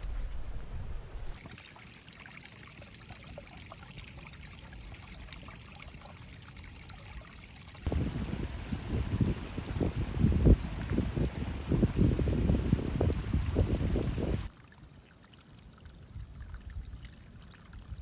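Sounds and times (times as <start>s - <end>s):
water trickling and dripping: 1.4s - 18.0s
wind buffeting microphone: 7.9s - 14.5s.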